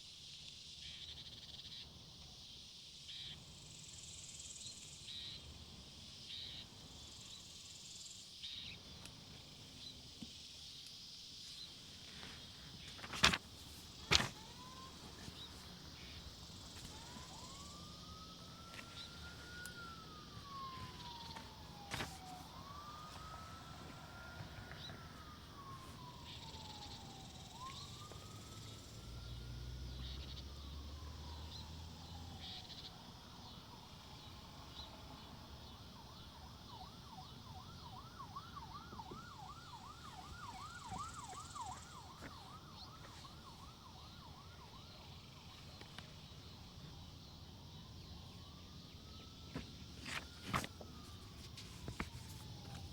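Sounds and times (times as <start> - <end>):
faint emergency siren: 0.7 - 52.9.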